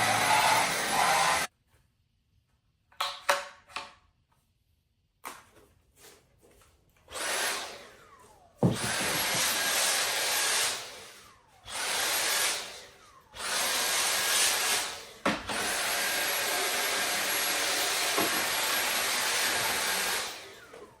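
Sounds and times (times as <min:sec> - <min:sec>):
vacuum motor whirring: 0:00.0 - 0:01.5, 0:07.1 - 0:21.0.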